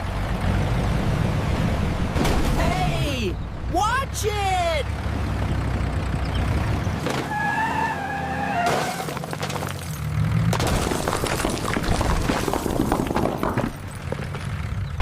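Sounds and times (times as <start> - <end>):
crashing and clattering: 8.6 - 14.6.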